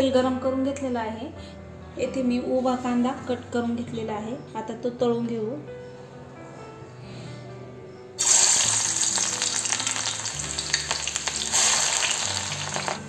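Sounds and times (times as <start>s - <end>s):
onions sizzling in hot oil: 8.2s - 13.0s.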